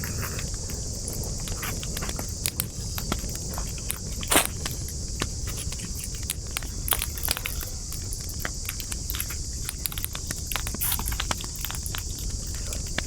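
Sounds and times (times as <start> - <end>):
campfire crackling: 0.0 - 13.0
steady high hiss: 0.0 - 13.0.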